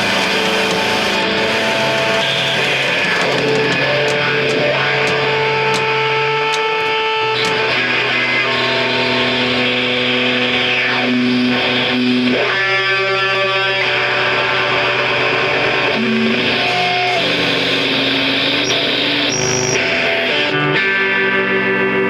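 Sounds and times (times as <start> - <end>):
distorted electric guitar notes: 0.0 - 22.0.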